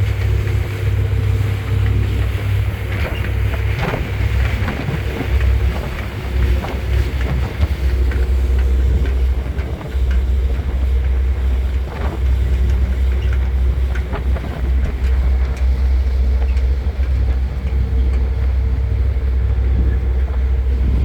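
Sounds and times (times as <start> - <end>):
ferry engines droning: 0.0 - 21.0
wind buffeting microphone: 0.0 - 21.0.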